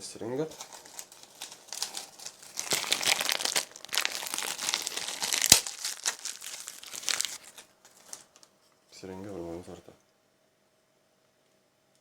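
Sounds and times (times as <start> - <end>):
packet crinkling and tearing: 0.5 - 8.5.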